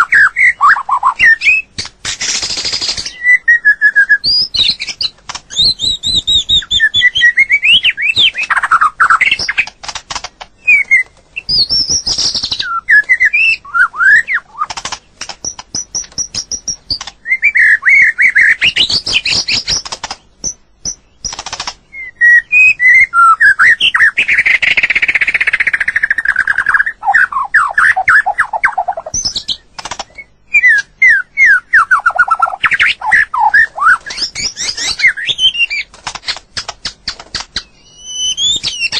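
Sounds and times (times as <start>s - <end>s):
bird singing whistled phrases: 0.0s - 1.7s, 2.9s - 9.6s, 10.6s - 14.7s, 15.8s - 19.8s, 20.9s - 35.9s, 37.6s - 38.9s
rapid sharp bird clicks: 1.6s - 3.2s, 4.6s - 6.7s, 7.6s - 12.6s, 14.6s - 17.2s, 18.4s - 21.9s, 28.9s - 30.3s, 34.0s - 38.9s.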